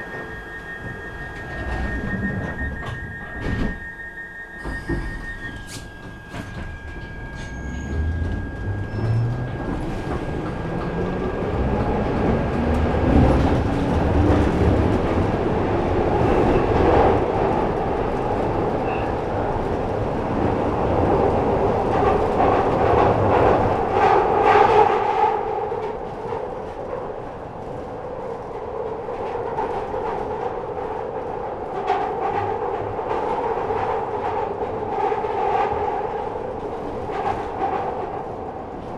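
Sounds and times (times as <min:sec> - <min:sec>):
train motor whine: 0:00.0 - 0:14.5
train rumble in tunnel: 0:00.0 - 0:38.9
wheels clattering on rails: 0:04.6 - 0:38.9.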